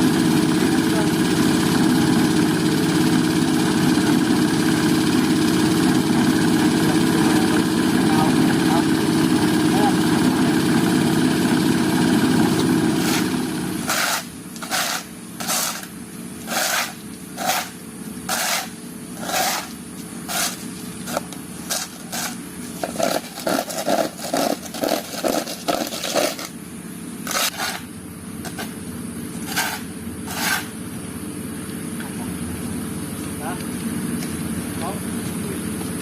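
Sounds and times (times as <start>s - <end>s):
engine humming: 0.0s - 36.0s
hand tool scraping wet concrete: 12.9s - 26.5s, 27.2s - 27.9s, 29.4s - 30.8s.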